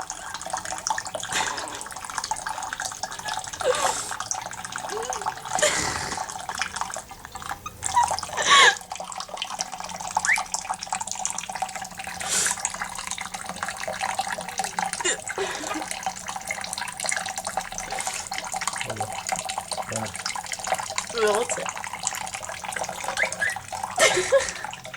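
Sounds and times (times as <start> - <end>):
tap water running into sink: 0.0 - 24.9
parrot high squeaks: 7.5 - 8.3, 10.2 - 10.6, 22.9 - 23.7.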